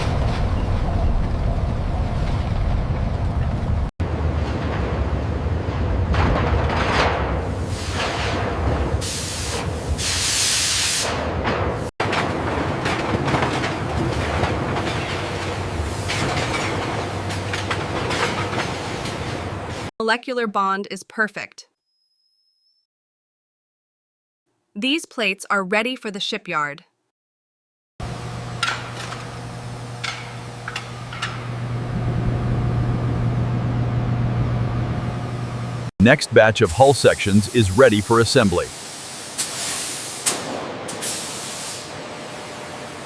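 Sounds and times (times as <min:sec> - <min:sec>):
rumbling clattering machinery: 0:00.0 - 0:07.5
low machinery hum: 0:28.0 - 0:35.9.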